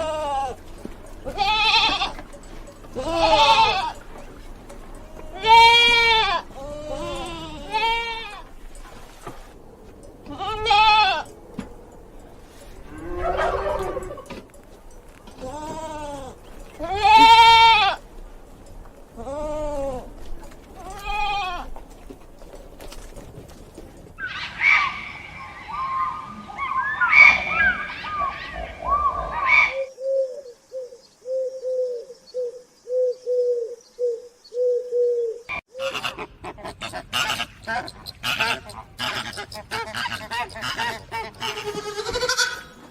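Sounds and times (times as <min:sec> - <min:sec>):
livestock bleating: 0:00.0 - 0:04.3, 0:05.0 - 0:08.5, 0:10.2 - 0:11.3, 0:15.3 - 0:18.0, 0:20.8 - 0:21.7, 0:40.4 - 0:42.8
birds chirping: 0:00.0 - 0:42.9.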